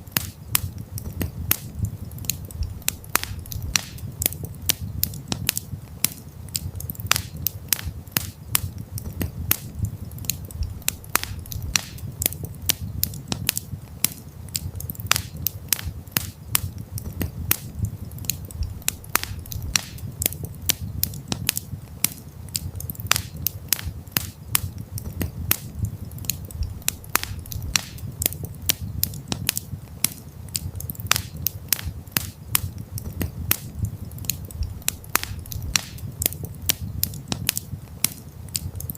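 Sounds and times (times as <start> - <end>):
campfire crackling and popping: 0.0 - 38.9
low steady rumble: 16.0 - 21.9, 22.9 - 29.9, 31.9 - 37.9.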